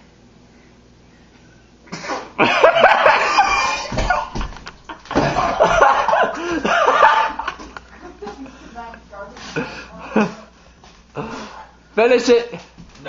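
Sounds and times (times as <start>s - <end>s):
loud laughter: 2.4s - 4.4s, 5.2s - 8.4s.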